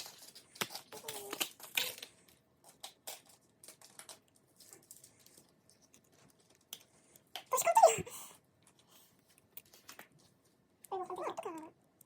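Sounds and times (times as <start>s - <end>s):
packaging rustling and clicking: 0.0s - 6.9s.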